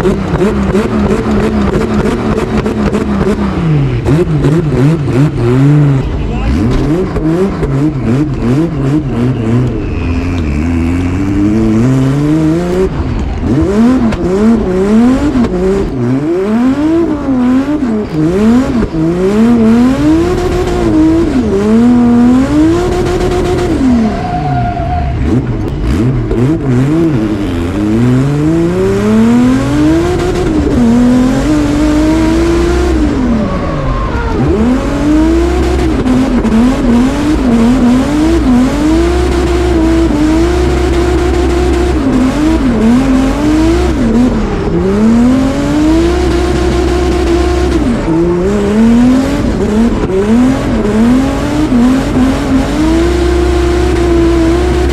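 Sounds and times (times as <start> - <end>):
car engine revving hard: 0.0 - 54.9
tyre squeal: 23.7 - 25.5, 33.2 - 35.2.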